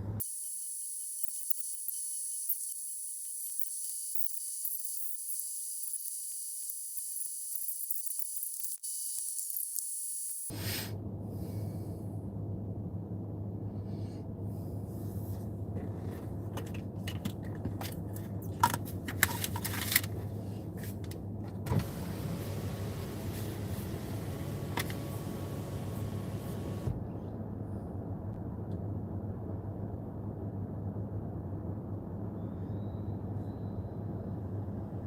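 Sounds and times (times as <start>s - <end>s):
vehicle idling hum: 10.5s - 35.0s.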